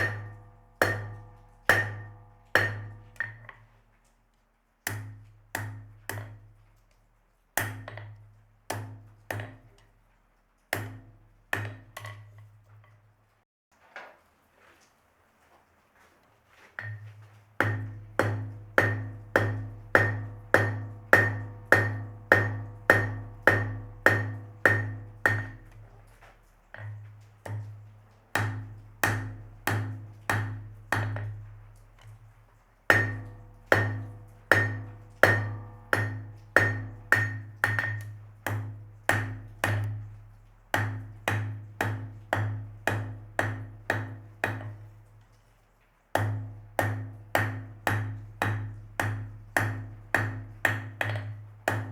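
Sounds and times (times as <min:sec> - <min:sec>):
hammer striking an anvil: 0:00.0 - 0:03.6, 0:17.6 - 0:25.7, 0:32.9 - 0:40.0.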